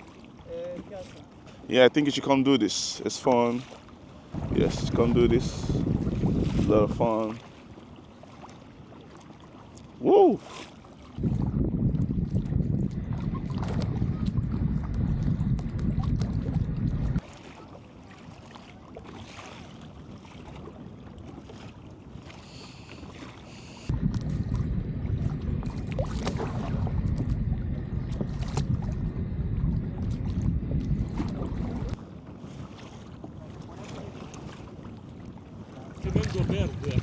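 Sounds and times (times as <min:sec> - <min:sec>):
paddle splashes in water: 0:00.0 - 0:01.7, 0:03.3 - 0:04.9, 0:05.9 - 0:11.4, 0:17.2 - 0:23.9, 0:25.7 - 0:27.3, 0:31.2 - 0:37.0
wind buffeting microphone: 0:04.4 - 0:07.1, 0:11.2 - 0:17.2, 0:23.9 - 0:32.0, 0:36.0 - 0:37.0.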